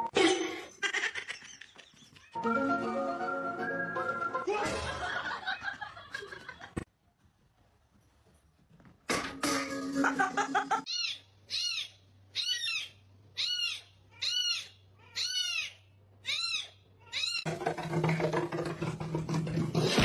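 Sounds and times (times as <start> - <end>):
kitten meowing: 10.9 - 17.4.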